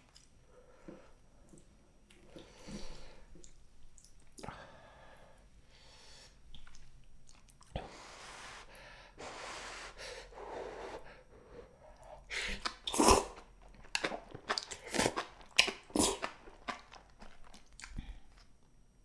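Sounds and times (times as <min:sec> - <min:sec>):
chewing and wet mouth sounds: 0:06.5 - 0:08.0, 0:10.7 - 0:18.6.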